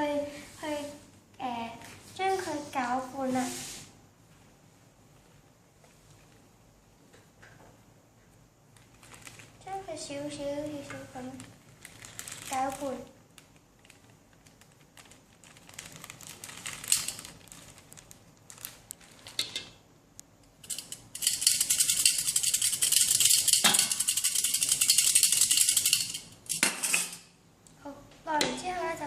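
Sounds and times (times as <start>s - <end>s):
flour sifting through sieve: 1.8s - 4.0s
utensils clinking and scraping: 20.6s - 27.3s.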